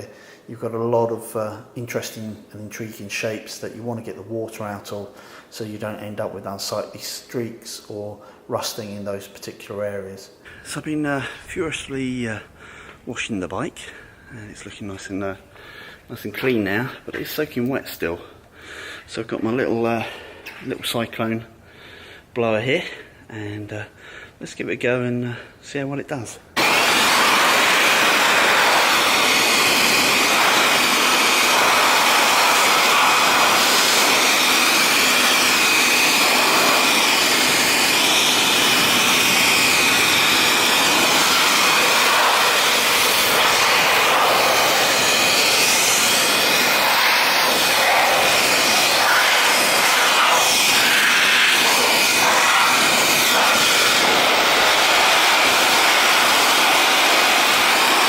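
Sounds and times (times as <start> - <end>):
electric blower whining: 26.6 - 58.0.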